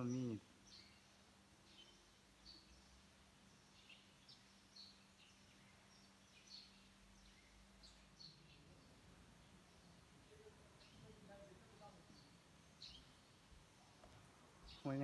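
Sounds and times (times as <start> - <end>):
faint steady hum: 0.0 - 15.0
small birds chirping: 0.0 - 15.0.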